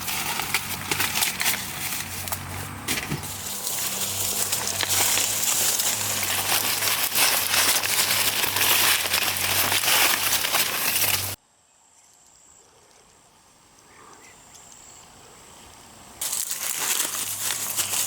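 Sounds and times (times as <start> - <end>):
dry corn stalks rustling: 0.0 - 11.4, 16.2 - 18.0.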